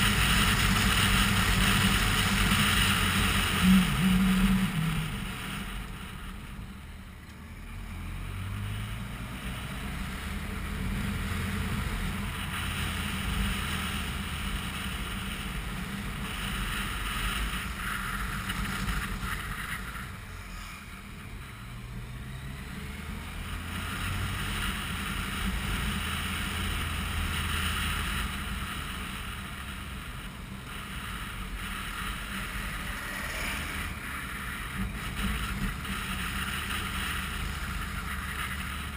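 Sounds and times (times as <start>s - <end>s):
motorcycle engine revving: 0.0s - 6.4s, 8.0s - 38.9s.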